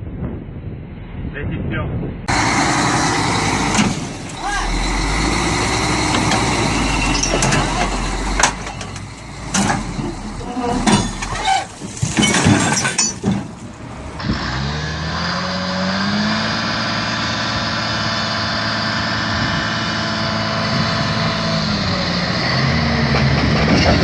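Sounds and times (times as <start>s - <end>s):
vehicle engine speeding up: 2.2s - 10.8s, 13.9s - 24.0s
irregular knocking and rumbling: 2.3s - 14.2s.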